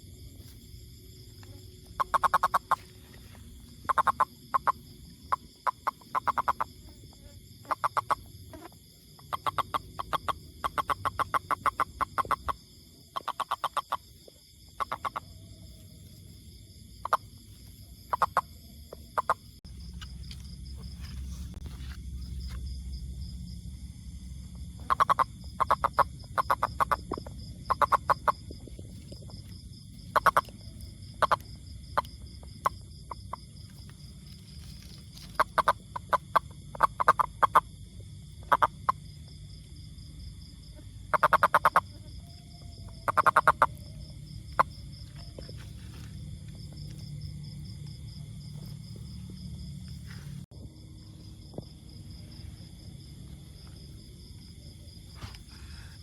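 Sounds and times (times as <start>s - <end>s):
toad calling in pulsed trills: 1.5s - 2.9s, 3.8s - 6.7s, 7.6s - 14.1s, 14.7s - 15.5s, 17.0s - 19.6s, 24.8s - 28.5s, 30.1s - 33.4s, 35.2s - 37.7s, 38.4s - 39.0s, 41.1s - 45.7s.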